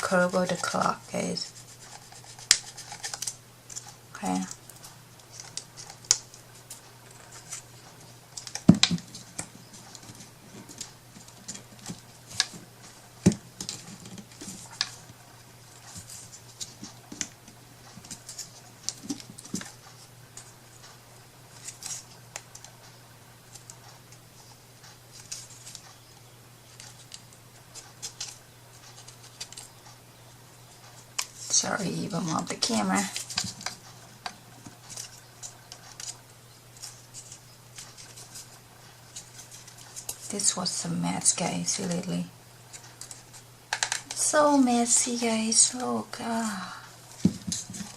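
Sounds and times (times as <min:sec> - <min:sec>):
clicks taps and rustles: 0:00.0 - 0:24.2, 0:30.6 - 0:46.4, 0:47.1 - 0:47.9.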